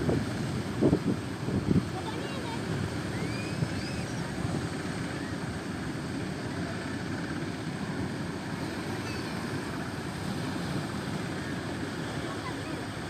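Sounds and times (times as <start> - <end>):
wind rushing over microphone: 0.0 - 6.5
faint high whistling: 3.1 - 4.4, 5.1 - 5.5.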